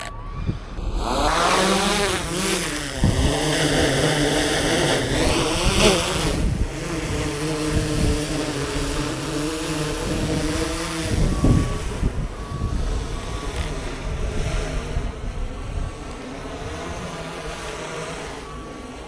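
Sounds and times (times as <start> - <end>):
short beeps: 0.0 - 1.6, 11.2 - 14.2
wind buffeting microphone: 0.0 - 18.8
motor hum: 0.0 - 19.0.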